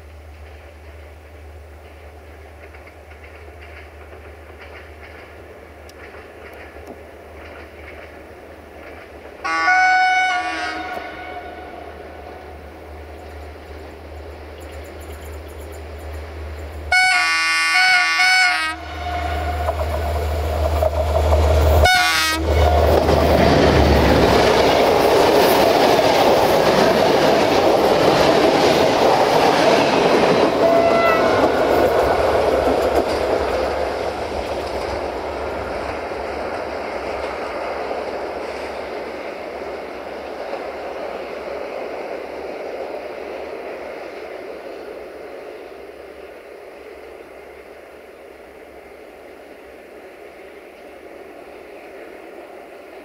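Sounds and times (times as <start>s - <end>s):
locomotive engine rumble: 0.0s - 53.0s
wheels clattering over rail joints: 0.4s - 9.4s, 19.4s - 44.8s
train horn blast: 9.4s - 12.0s, 16.9s - 19.8s, 21.8s - 22.8s, 30.5s - 31.7s.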